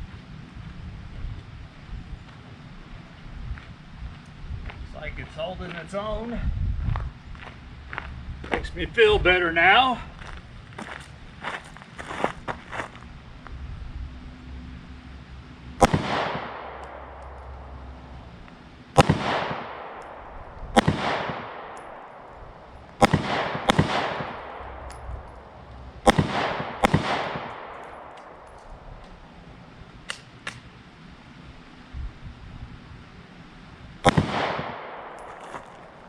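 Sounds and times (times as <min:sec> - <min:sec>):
faint gunshots: 0:15.8 - 0:18.2, 0:18.9 - 0:28.4, 0:34.0 - 0:36.0
pistol shots with echo: 0:15.8 - 0:29.0, 0:34.0 - 0:36.0.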